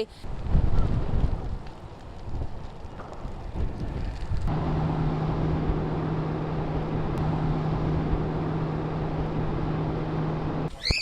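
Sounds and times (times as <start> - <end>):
wind rumbling on microphone: 0.0 - 10.7
low engine hum: 4.4 - 10.7.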